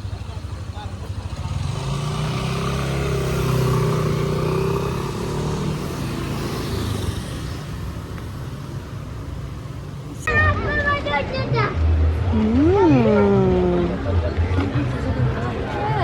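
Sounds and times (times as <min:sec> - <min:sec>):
vehicle engine passing by: 0:01.1 - 0:08.7.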